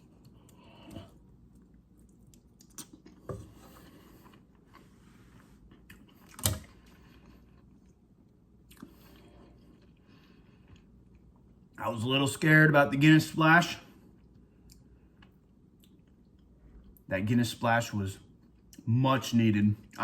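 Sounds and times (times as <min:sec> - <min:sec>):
person chewing food: 0:00.0 - 0:11.8, 0:14.0 - 0:17.1, 0:18.3 - 0:18.8.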